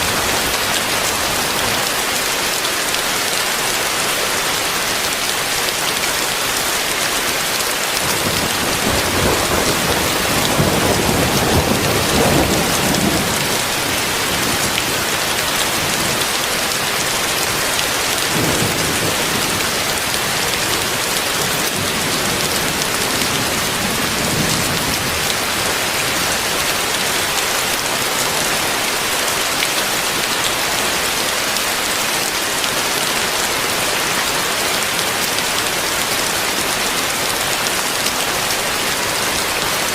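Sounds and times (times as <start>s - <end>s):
heavy rain hissing: 0.0s - 39.9s
rolling thunder rumble: 8.1s - 15.9s.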